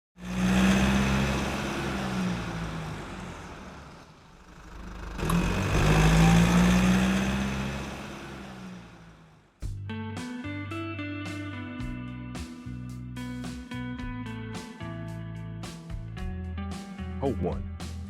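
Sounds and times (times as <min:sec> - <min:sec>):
car engine running: 0:00.2 - 0:09.8.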